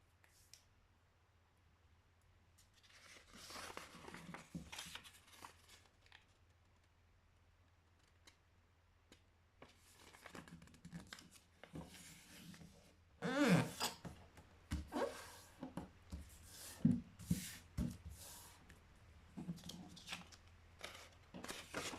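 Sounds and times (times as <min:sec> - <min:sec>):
paper rustling and crackling: 0:02.7 - 0:06.9, 0:09.6 - 0:12.6, 0:19.5 - 0:21.9.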